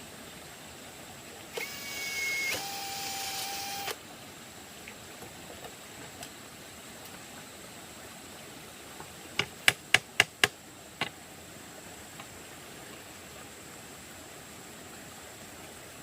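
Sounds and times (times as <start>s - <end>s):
small electric motor whining: 1.6s - 4.0s.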